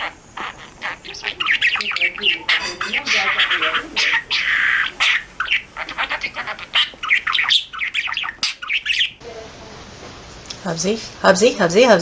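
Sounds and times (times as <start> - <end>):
parrot squawking and chirping: 0.0 - 9.2.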